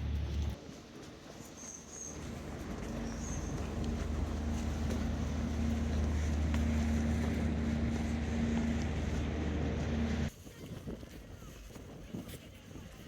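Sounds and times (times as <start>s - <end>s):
boat engine humming: 0.0s - 0.6s, 2.1s - 10.3s.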